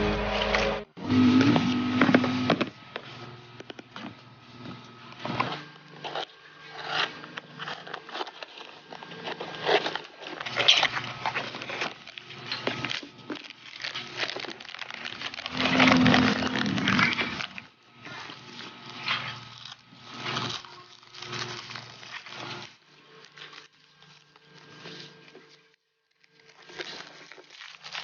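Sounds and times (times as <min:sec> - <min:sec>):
packaging clicks taps and rustles: 0:06.0 - 0:17.6.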